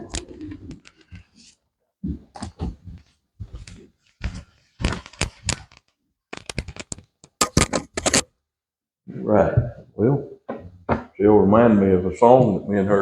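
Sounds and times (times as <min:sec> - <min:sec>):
handling rustles and clicks: 0:02.3 - 0:08.3.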